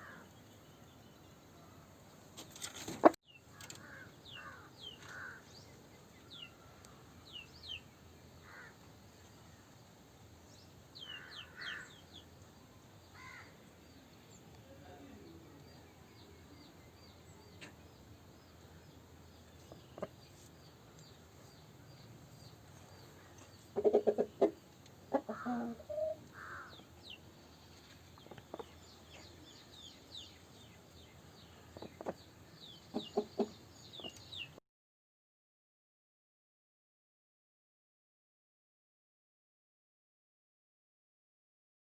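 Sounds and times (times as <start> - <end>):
chickens clucking: 2.8 - 3.8, 16.6 - 18.6, 19.2 - 34.6.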